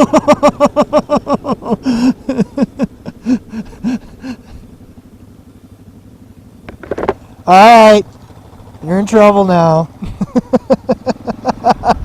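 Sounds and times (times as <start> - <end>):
motorcycle engine rumble: 0.0 - 12.0
wind: 0.0 - 12.0.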